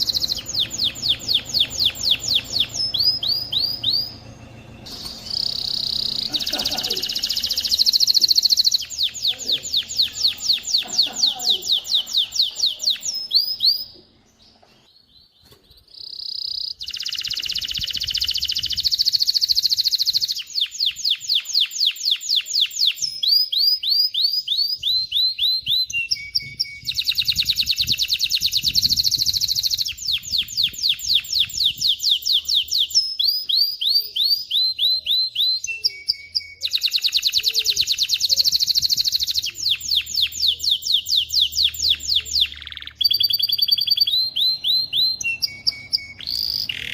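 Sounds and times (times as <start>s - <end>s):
canary singing trills: 0.0s - 46.9s.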